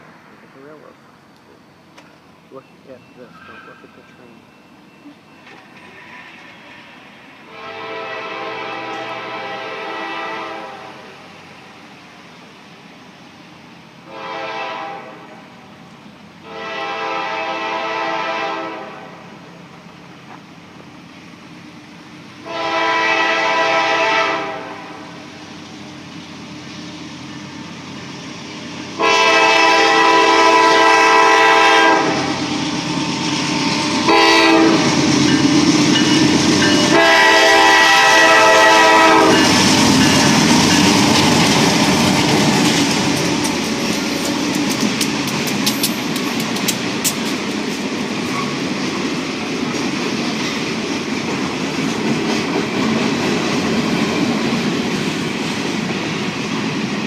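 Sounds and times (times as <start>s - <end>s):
train rumbling past: 0.0s - 57.0s
train wheel clatter: 4.9s - 7.0s, 32.8s - 57.0s
locomotive air horn blasts: 7.4s - 11.1s, 14.1s - 15.4s, 16.4s - 19.2s, 22.4s - 25.2s, 29.0s - 32.4s, 34.1s - 34.9s, 36.8s - 39.5s.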